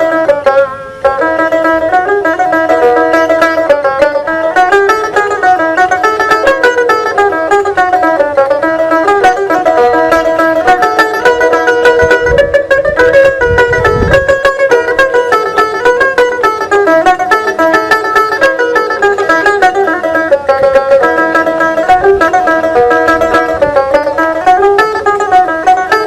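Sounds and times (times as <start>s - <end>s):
plucked lute melody: 0.0s - 26.0s.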